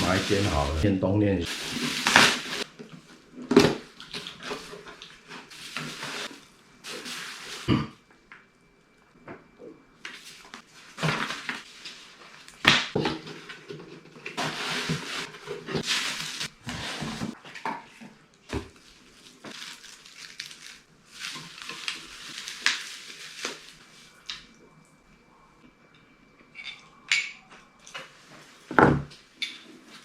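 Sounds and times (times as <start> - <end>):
rustling and scraping: 1.5 - 3.2, 3.8 - 7.8, 10.1 - 24.1.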